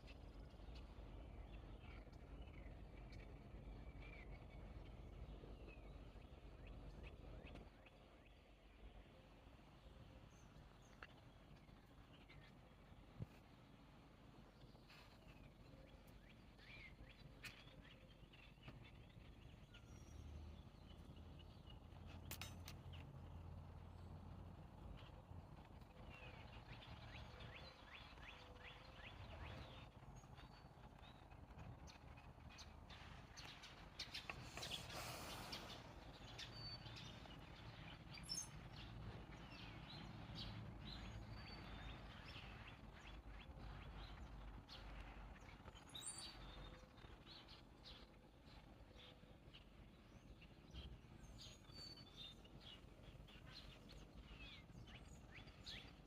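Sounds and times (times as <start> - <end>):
faint bird chirps: 0.0 - 23.1
low outdoor background noise: 0.0 - 56.0.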